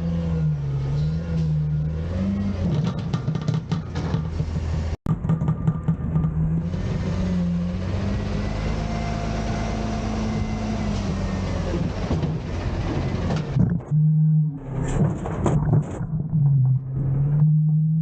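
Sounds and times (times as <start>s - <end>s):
garbage truck engine revving: 0.0s - 5.0s, 5.6s - 15.5s
knocks: 2.8s - 6.5s.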